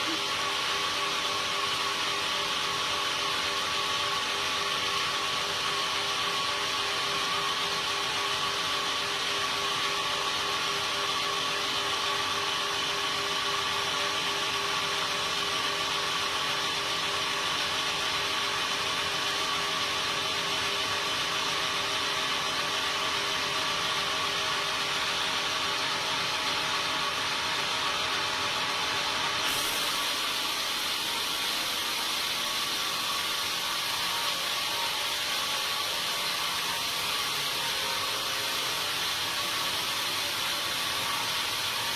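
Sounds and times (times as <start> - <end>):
saw whining cutting timber: 28.1 - 41.9
bright hiss: 29.4 - 35.6.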